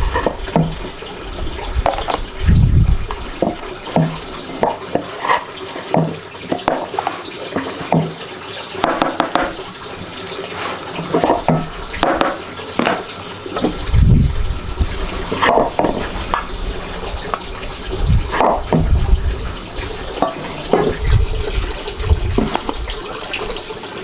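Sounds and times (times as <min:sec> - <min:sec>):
water splashing and sloshing: 0:00.0 - 0:24.0.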